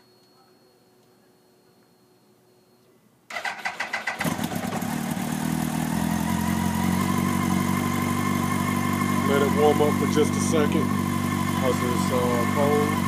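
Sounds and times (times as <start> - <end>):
motorcycle starter cranking: 3.3 - 5.3
motorcycle engine idling: 4.1 - 13.0.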